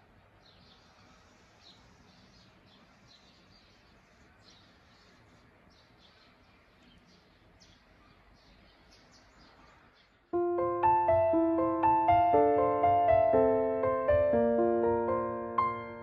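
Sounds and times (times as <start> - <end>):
quiet outdoor hiss: 0.0 - 16.0
faint bird chirps: 0.2 - 10.3.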